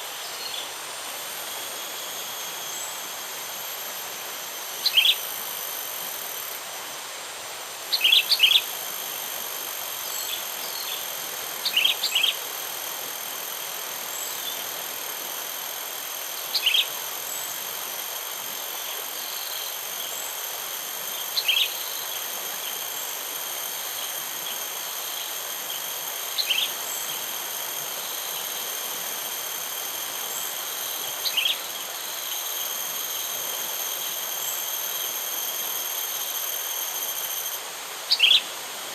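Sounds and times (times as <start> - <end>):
insect trilling: 0.0 - 7.1, 7.8 - 38.6
constant hiss: 0.0 - 38.9.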